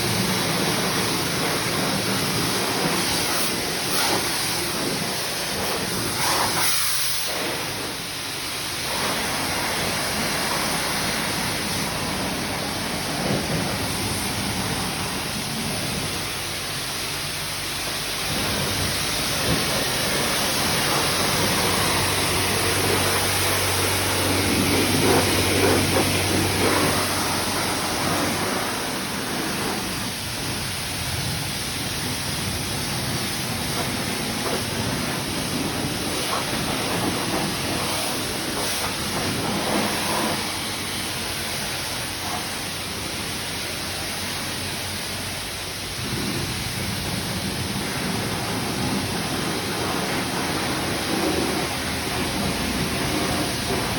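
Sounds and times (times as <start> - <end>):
spray wand hissing on metal: 0.0 - 16.5, 17.1 - 30.7, 32.0 - 43.6, 46.0 - 53.9.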